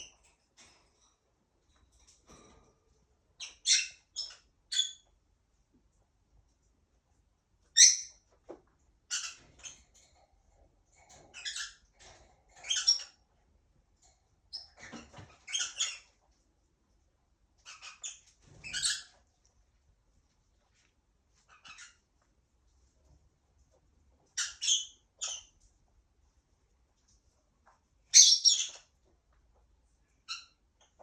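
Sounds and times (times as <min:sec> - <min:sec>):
parrot squeaking and chirping: 0:03.4 - 0:05.1, 0:07.7 - 0:08.2, 0:09.0 - 0:10.0, 0:11.2 - 0:11.9, 0:12.6 - 0:13.3, 0:14.5 - 0:16.2, 0:17.6 - 0:19.3, 0:21.4 - 0:22.1, 0:24.3 - 0:25.6, 0:28.1 - 0:28.9, 0:30.2 - 0:31.0.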